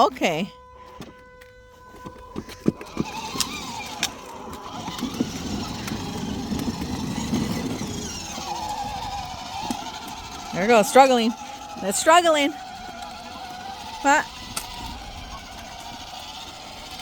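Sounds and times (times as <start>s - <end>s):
toy truck motors and wheels rumbling: 0.0s - 17.0s
sharp clicks: 14.3s - 15.0s.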